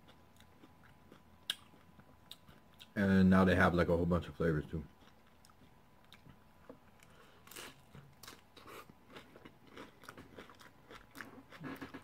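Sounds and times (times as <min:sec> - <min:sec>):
chewing crispy shell: 0:04.9 - 0:12.0.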